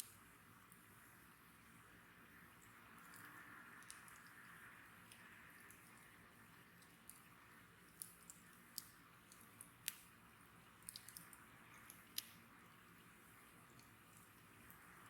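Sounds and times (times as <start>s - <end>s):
bonfire crackling: 2.6s - 15.0s
fire pops and snaps: 6.8s - 10.2s, 10.8s - 12.4s.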